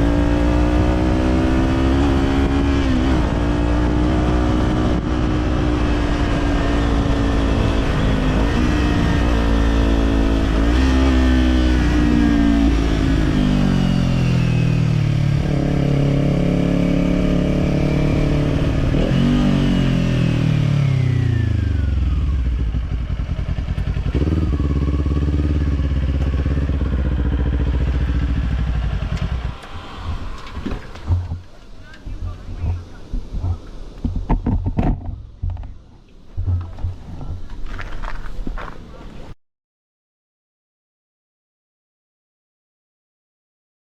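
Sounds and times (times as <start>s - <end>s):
motorcycle engine revving: 0.0s - 33.6s.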